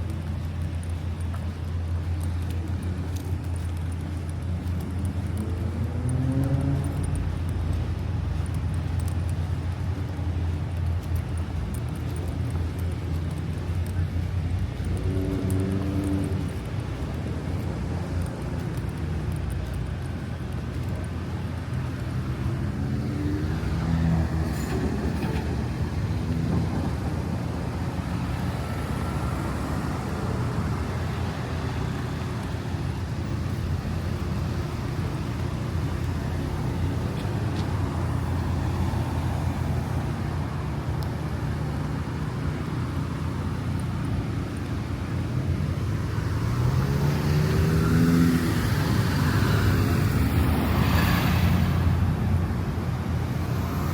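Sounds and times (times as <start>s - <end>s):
road traffic rumble: 0.0s - 53.9s
vehicle engine speeding up: 5.3s - 7.4s, 14.8s - 16.8s, 45.8s - 52.3s.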